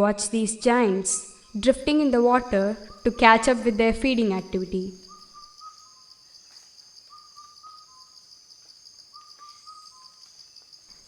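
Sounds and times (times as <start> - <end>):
high-pitched insect drone: 1.2 - 11.0
bird whistling: 1.3 - 6.1, 7.1 - 8.2, 9.1 - 10.2.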